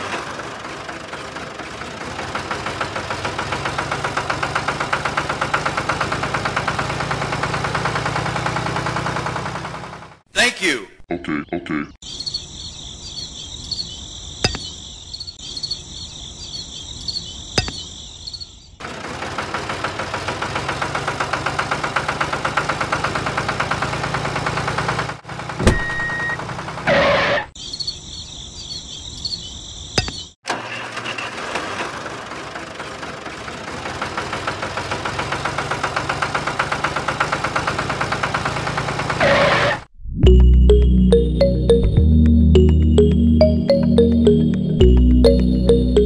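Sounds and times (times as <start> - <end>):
small tractor engine chugging: 0.0 - 10.2, 18.8 - 26.9, 30.5 - 39.6
crickets chirping: 12.0 - 18.7.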